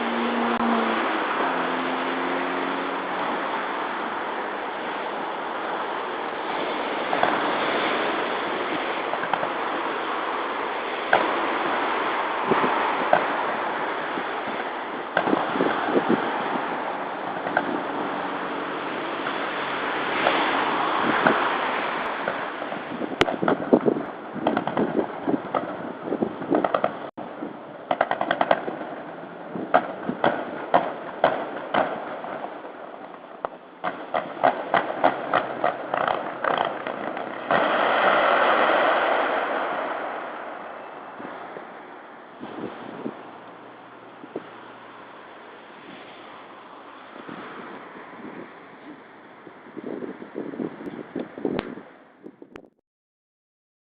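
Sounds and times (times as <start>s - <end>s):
road traffic rushing: 0.0s - 52.4s
distant fireworks bursting: 3.1s - 49.0s.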